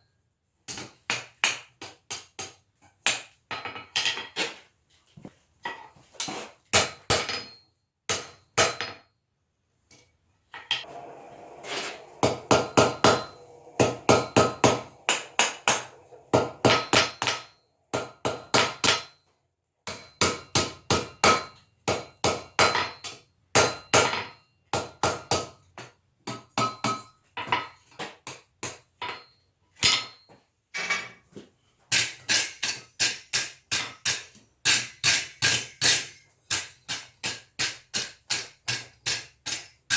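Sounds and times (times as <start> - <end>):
hammer striking iron on anvil: 11.7 - 19.1, 19.9 - 25.5.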